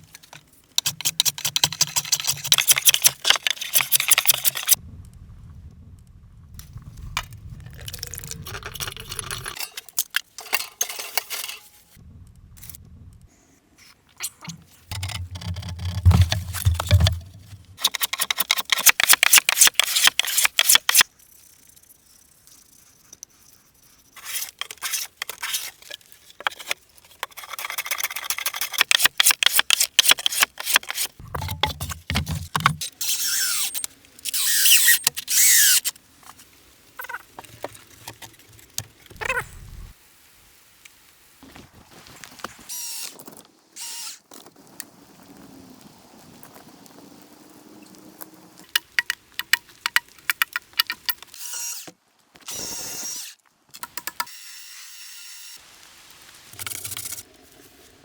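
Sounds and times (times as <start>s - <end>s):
crackling and rustling: 13.9s - 21.0s, 44.3s - 50.3s
low thuds: 14.9s - 17.8s.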